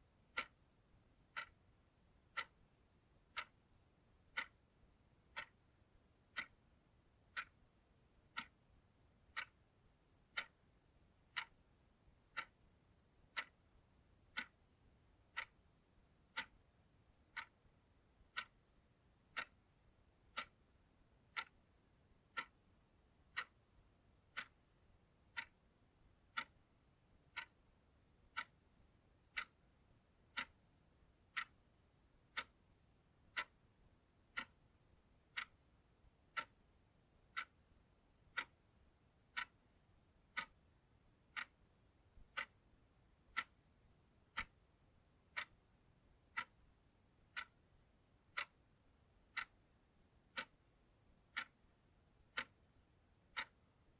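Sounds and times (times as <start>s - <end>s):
clock ticking: 0.0s - 53.9s.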